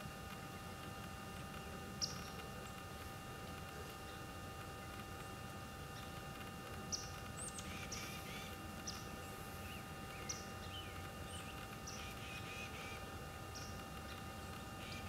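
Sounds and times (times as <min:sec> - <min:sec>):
faint steady hum: 0:00.0 - 0:15.0
birds chirping: 0:02.0 - 0:02.8, 0:06.8 - 0:15.0.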